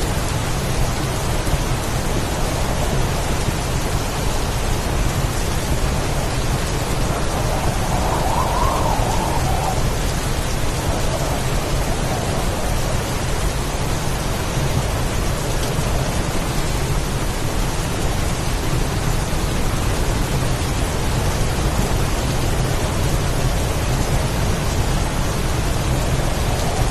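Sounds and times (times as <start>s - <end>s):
heavy rain: 0.0s - 26.9s
strong wind: 0.0s - 26.9s
deep rumble: 4.8s - 15.0s.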